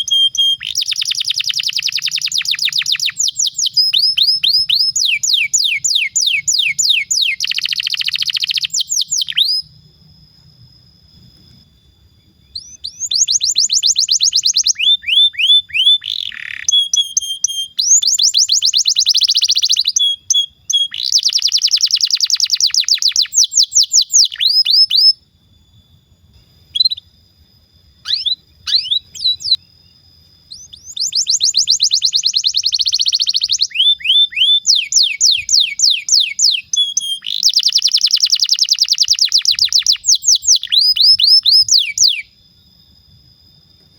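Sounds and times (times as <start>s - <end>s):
canary singing trills: 0.0s - 10.0s, 11.2s - 27.2s, 28.0s - 42.4s.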